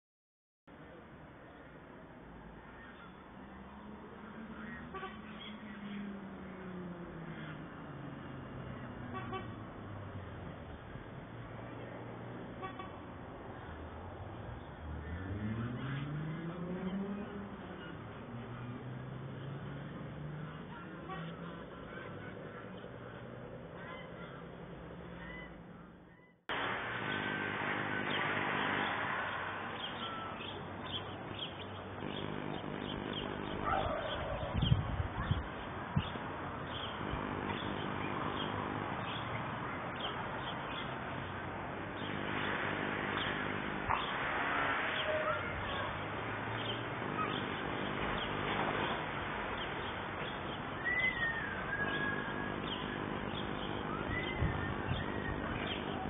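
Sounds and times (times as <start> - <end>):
steady outdoor hiss: 0.7 - 56.0
birds chirping: 2.6 - 9.5, 14.3 - 26.4, 27.0 - 56.0
bird chirps: 49.6 - 56.0
whistled bird call: 50.8 - 56.0.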